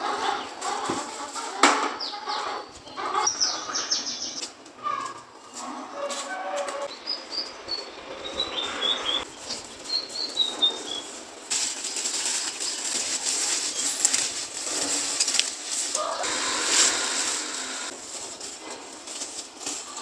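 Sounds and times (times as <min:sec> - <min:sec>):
small bird chirping: 0:02.0 - 0:04.6, 0:06.9 - 0:11.2
steady crackling hiss: 0:09.2 - 0:20.0.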